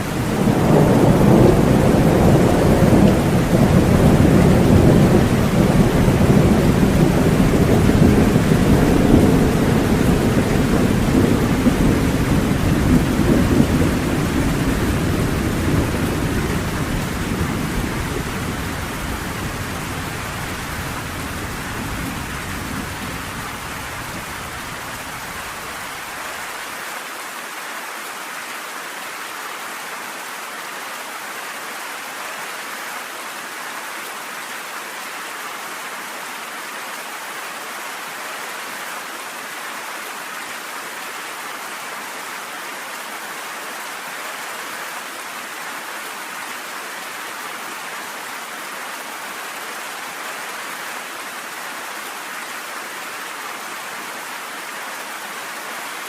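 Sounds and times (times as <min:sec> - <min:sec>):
heavy rain: 0:00.0 - 0:56.0
rolling thunder: 0:00.3 - 0:24.8.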